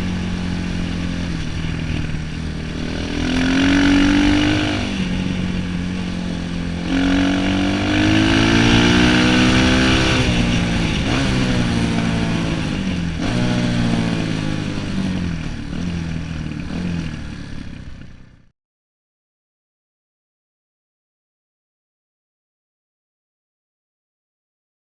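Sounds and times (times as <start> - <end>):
dirt bike engine revving: 0.0 - 18.5.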